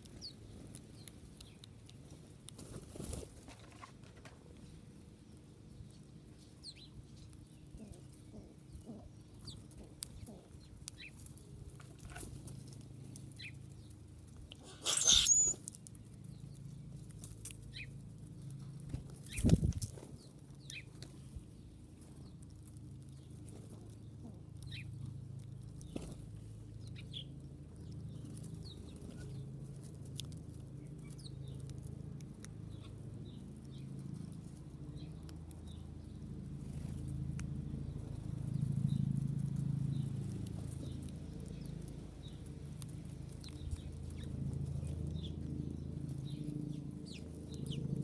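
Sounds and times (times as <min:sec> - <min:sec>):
small birds chirping: 0:00.0 - 0:48.0
steady low hum: 0:04.6 - 0:48.0.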